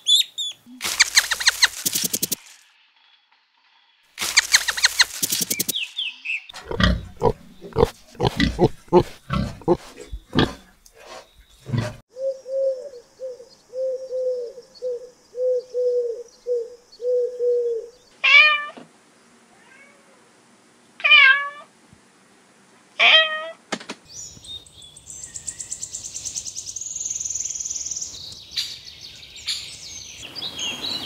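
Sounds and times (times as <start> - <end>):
rabbits chewing crunches: 0.8 - 2.6, 4.2 - 5.9.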